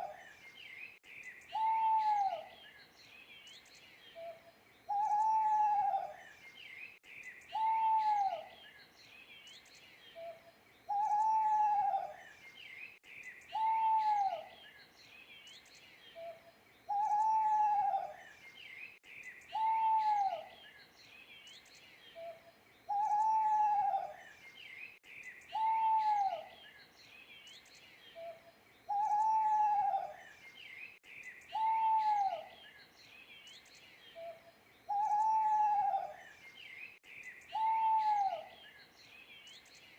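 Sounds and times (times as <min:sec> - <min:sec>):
small birds chirping: 0:00.0 - 0:39.9
owl hooting: 0:01.5 - 0:02.5, 0:04.2 - 0:06.2, 0:07.5 - 0:08.5, 0:10.2 - 0:12.2, 0:13.5 - 0:14.5, 0:16.2 - 0:18.2, 0:19.5 - 0:20.5, 0:22.2 - 0:24.2, 0:25.5 - 0:26.5, 0:28.2 - 0:30.2, 0:31.5 - 0:32.6, 0:34.2 - 0:36.2, 0:37.5 - 0:38.6.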